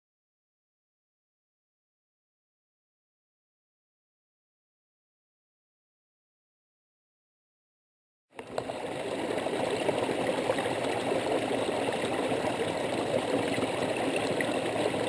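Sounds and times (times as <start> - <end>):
stream water rushing: 8.4 - 15.0.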